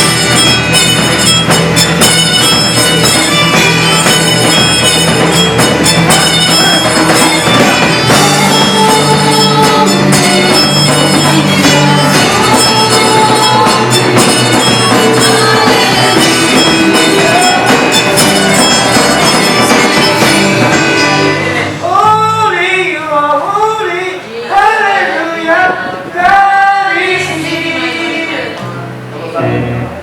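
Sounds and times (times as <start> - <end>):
worship band playing: 0.0 - 30.0
person singing: 5.8 - 29.6.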